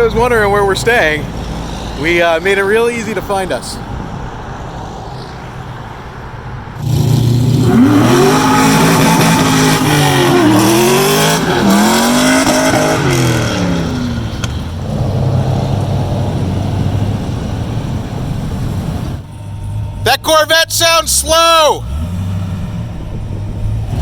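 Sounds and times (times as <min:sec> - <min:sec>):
car engine revving: 0:06.7 - 0:24.0
low rumble: 0:12.8 - 0:20.1, 0:22.4 - 0:24.0.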